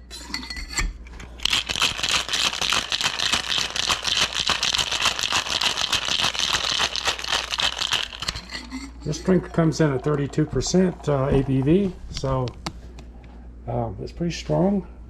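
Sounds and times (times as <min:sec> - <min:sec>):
ice rattling in cocktail shaker: 0:01.4 - 0:10.4.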